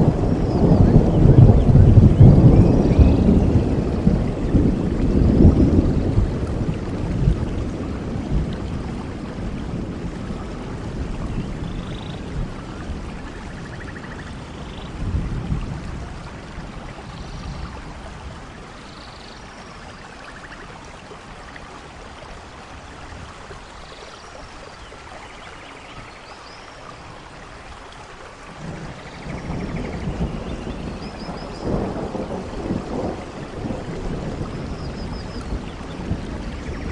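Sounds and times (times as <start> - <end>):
rolling thunder: 0.0 - 18.4, 28.5 - 36.9
steady rain: 0.0 - 36.9.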